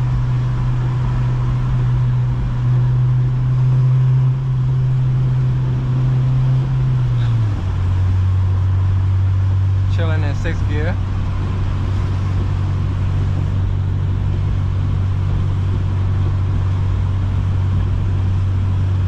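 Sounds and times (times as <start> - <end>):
car engine droning: 0.0 - 19.0
tyre and road noise: 0.0 - 19.0.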